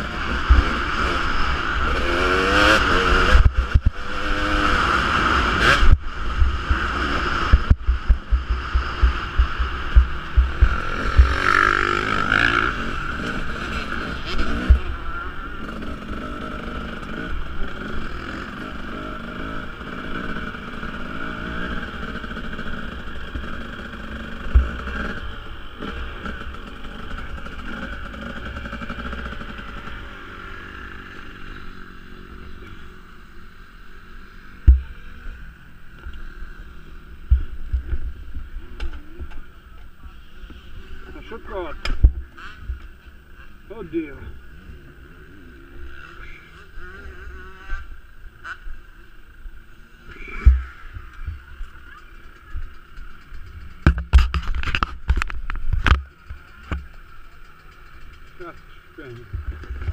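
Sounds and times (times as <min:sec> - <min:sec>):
motorcycle engine revving: 0:00.0 - 0:59.9
low thumps: 0:05.8 - 0:12.2.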